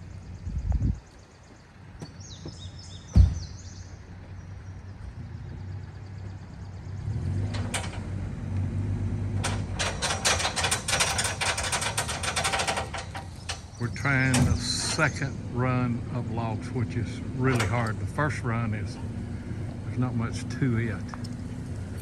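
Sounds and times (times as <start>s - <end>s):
engine running: 1.2s - 22.0s
log thump: 3.1s - 3.4s
fast clicking rattle: 9.4s - 13.8s.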